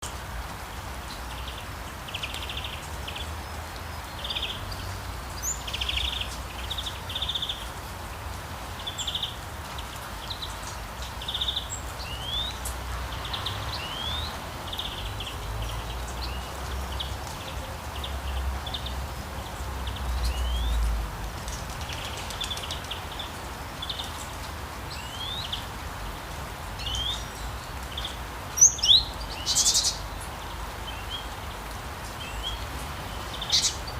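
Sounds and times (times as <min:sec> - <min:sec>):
light rain: 0:00.0 - 0:33.9
birds chirping: 0:08.7 - 0:25.8, 0:26.7 - 0:33.9.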